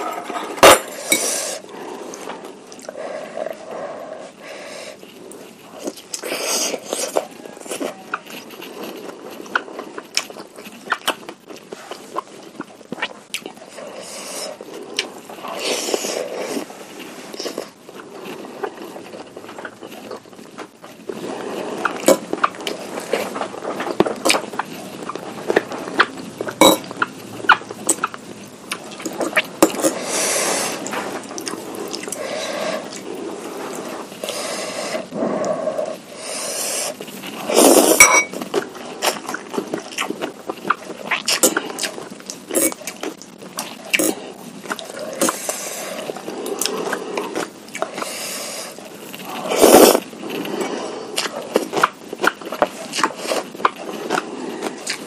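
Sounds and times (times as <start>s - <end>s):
chewing: 0.0s - 55.0s
slurping: 0.0s - 55.0s
spoon clinking against bowl: 38.0s - 38.4s.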